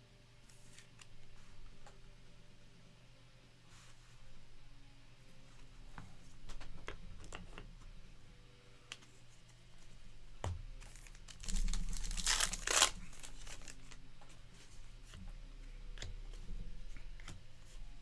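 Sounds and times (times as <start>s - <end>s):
card pack wrapper tearing: 10.8s - 14.0s.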